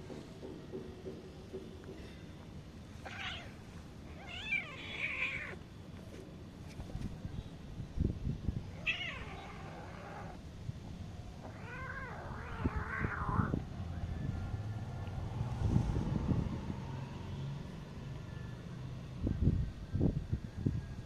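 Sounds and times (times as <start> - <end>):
cat meowing: 3.0 - 5.6, 8.8 - 10.4, 11.4 - 13.6.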